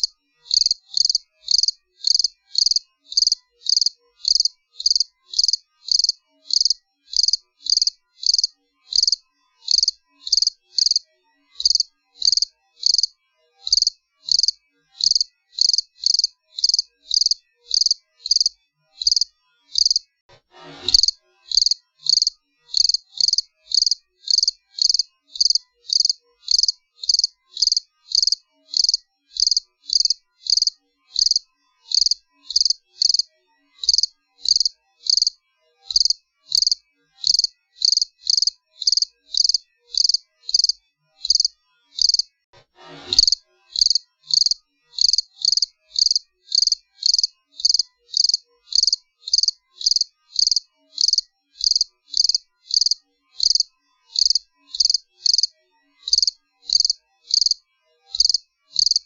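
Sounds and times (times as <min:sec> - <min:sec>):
cricket chirping: 0:00.0 - 0:11.0, 0:11.6 - 0:13.1, 0:13.7 - 0:20.0, 0:20.9 - 0:42.2, 0:43.2 - 0:55.5, 0:56.1 - 0:57.6, 0:58.2 - 0:59.0.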